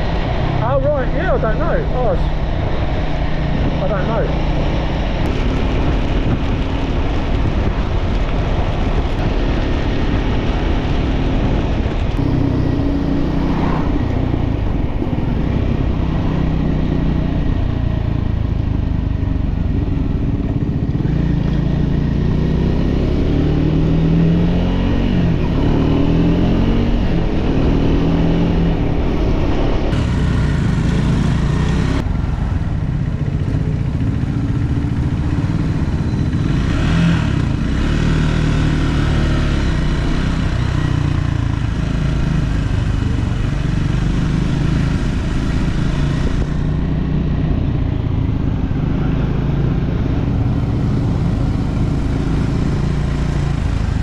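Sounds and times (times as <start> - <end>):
steady rushing noise: 0.0 - 22.7
motorcycle engine accelerating: 0.0 - 54.0.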